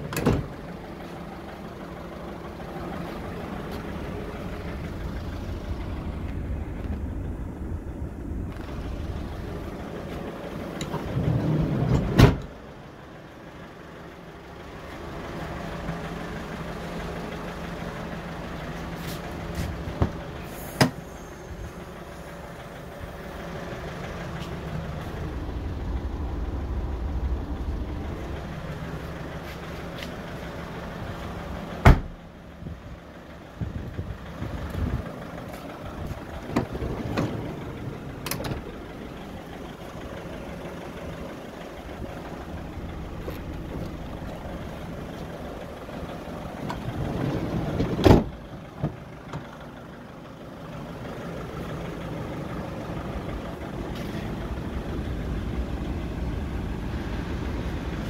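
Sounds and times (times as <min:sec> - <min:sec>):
diesel engine idling: 0:00.0 - 0:58.0
sliding door opening: 0:10.8 - 0:12.5, 0:36.4 - 0:38.7, 0:46.7 - 0:48.4.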